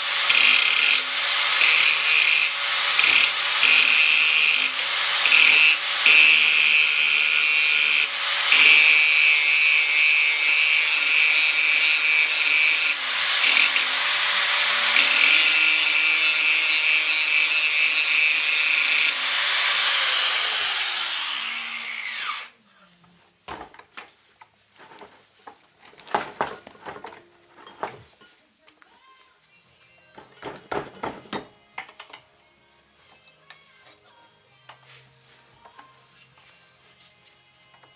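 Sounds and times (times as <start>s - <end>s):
power tool grinding steel: 0.0s - 22.6s.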